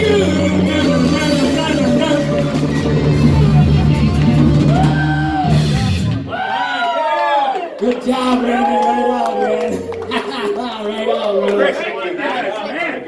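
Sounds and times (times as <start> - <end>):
live rock band playing: 0.0 - 6.3
voices: 7.6 - 13.0.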